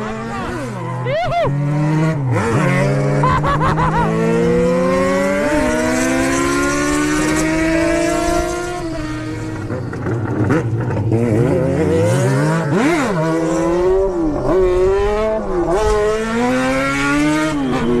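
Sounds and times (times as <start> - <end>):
motorcycle engines revving: 0.0 - 18.0.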